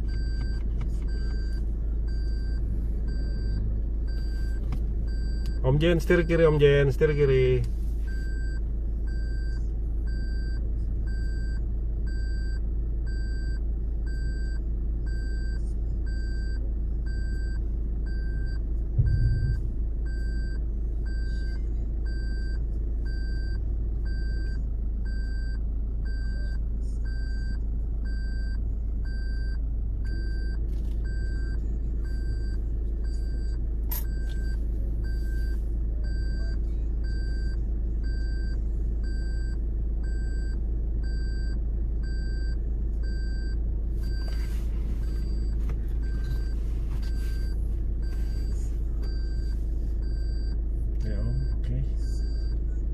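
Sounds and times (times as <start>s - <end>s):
vehicle engine rumbling: 0.0s - 52.9s
electronic warning beeper: 18.2s - 20.2s
low thump: 19.0s - 19.7s.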